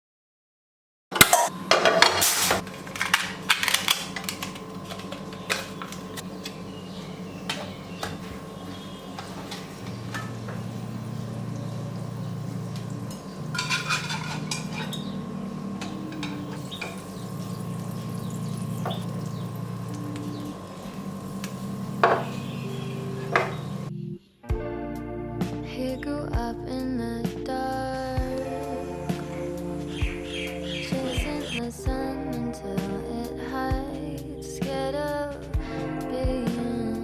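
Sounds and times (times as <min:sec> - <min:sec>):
low held tones: 0:04.6 - 0:24.0, 0:28.2 - 0:34.6
dishes and cutlery clinking: 0:12.7 - 0:17.1.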